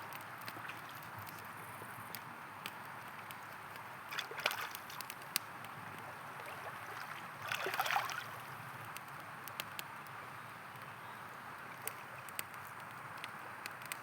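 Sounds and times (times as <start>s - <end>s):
campfire crackling: 0.0s - 14.0s
splashing: 4.1s - 5.1s, 6.4s - 8.5s
river flowing: 6.0s - 8.4s.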